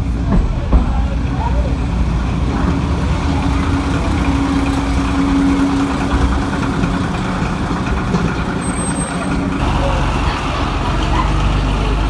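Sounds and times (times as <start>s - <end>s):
locomotive engine idling: 0.0s - 12.0s.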